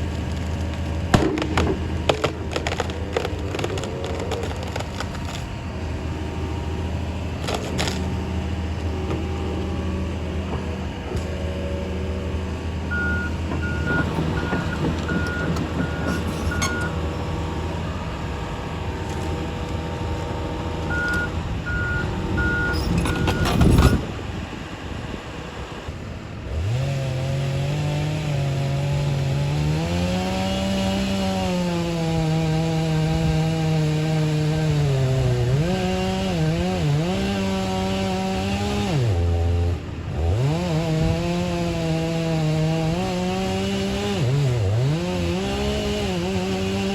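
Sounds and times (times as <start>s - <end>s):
chainsaw cutting: 0.0s - 46.9s
heavy equipment engine running: 0.0s - 46.9s
reversing alarm beeping: 12.9s - 17.0s, 20.9s - 24.0s.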